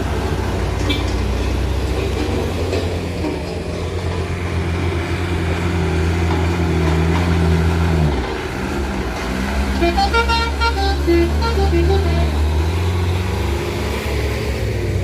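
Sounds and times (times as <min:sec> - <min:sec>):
truck diesel engine labouring: 0:00.0 - 0:15.0
short high-pitched notes: 0:09.8 - 0:12.5.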